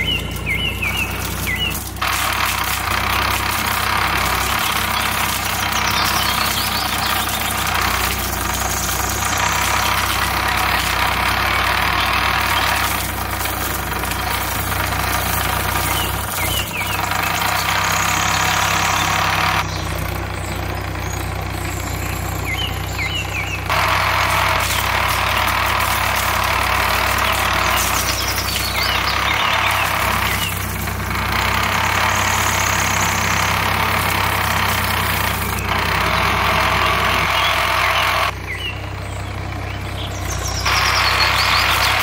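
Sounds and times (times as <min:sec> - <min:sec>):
small motor humming: 0:00.0 - 0:38.6, 0:39.2 - 0:42.0.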